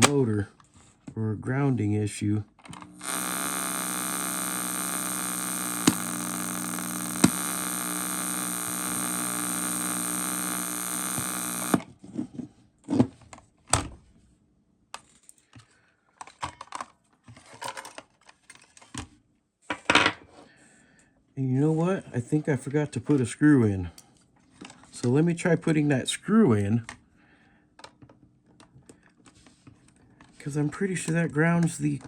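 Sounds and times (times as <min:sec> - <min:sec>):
static buzz and hiss with hum: 0:02.7 - 0:11.8
cassette player clicks: 0:02.8 - 0:11.8.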